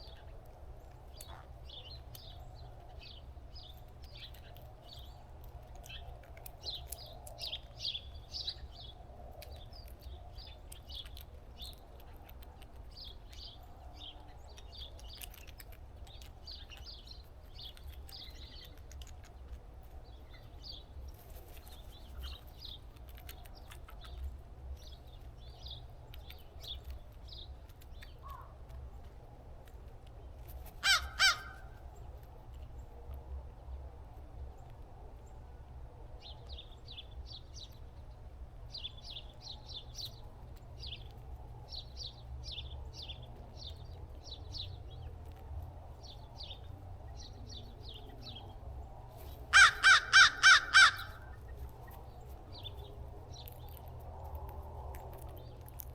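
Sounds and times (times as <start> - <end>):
small birds chirping: 0.0 - 55.9
crow cawing: 30.8 - 31.7, 49.5 - 51.4
steady low rumble: 50.6 - 55.9.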